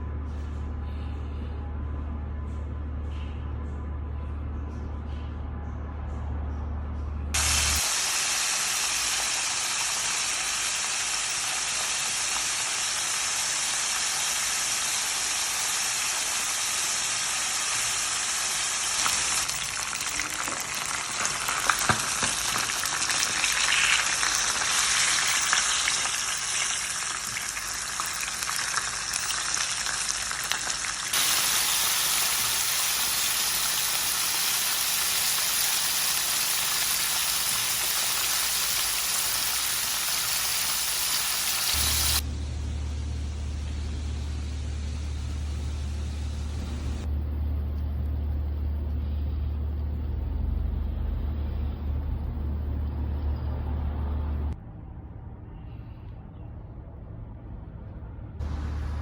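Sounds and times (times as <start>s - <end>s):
food sizzling in hot oil: 7.4s - 42.2s.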